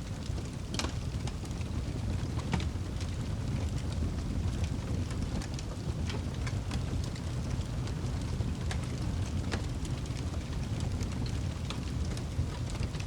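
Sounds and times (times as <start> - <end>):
fire crackling and popping: 0.0 - 13.0
wood fire rumbling: 0.0 - 13.0.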